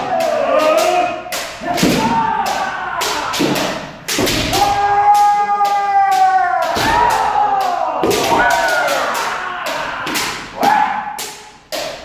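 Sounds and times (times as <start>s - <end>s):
long drawn-out shout: 0.0s - 3.8s, 4.5s - 11.2s
bamboo swords clacking: 0.0s - 12.0s.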